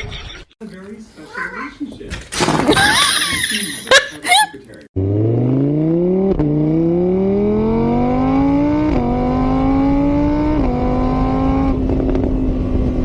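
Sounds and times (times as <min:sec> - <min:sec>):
car engine accelerating: 0:05.0 - 0:13.0.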